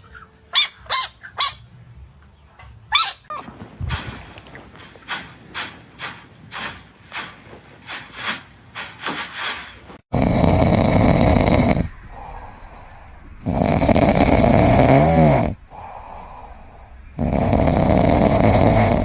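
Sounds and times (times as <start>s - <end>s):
loud snoring: 10.1s - 12.5s, 13.4s - 16.4s, 17.1s - 19.0s
quiet breaths: 10.1s - 19.0s.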